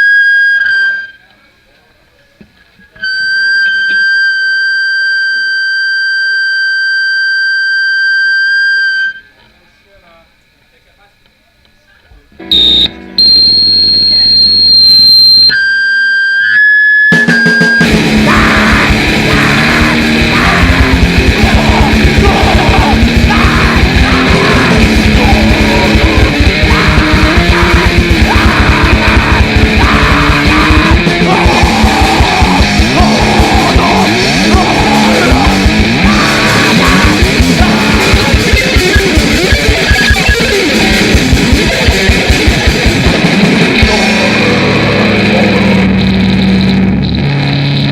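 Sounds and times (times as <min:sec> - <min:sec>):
guitar feedback squealing: 0:00.0 - 0:01.3, 0:03.0 - 0:09.3, 0:12.4 - 0:47.9
distorted electric guitar: 0:03.0 - 0:08.2, 0:12.4 - 0:47.9
very fast drumming: 0:17.2 - 0:44.6.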